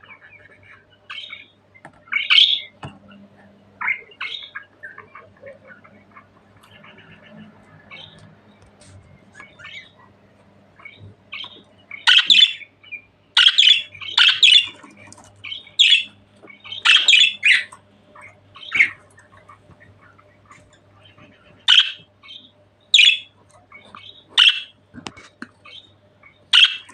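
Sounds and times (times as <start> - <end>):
budgerigar twittering: 0.0 - 2.8, 3.8 - 8.2, 9.3 - 10.1, 10.8 - 24.8, 25.6 - 26.9
budgerigar squawking: 0.2 - 2.7, 10.8 - 24.8, 25.6 - 26.9.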